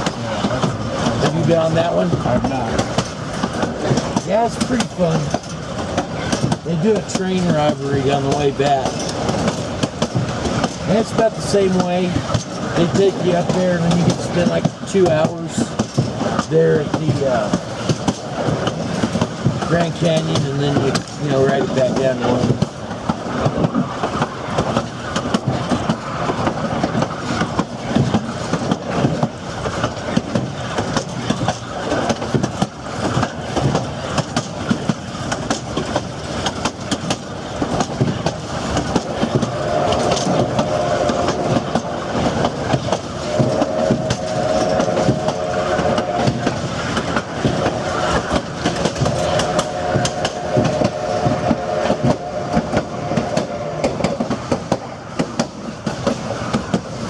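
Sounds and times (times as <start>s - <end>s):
train wheels clicking over rail joints: 0.0s - 57.0s
steady tone: 38.9s - 55.1s.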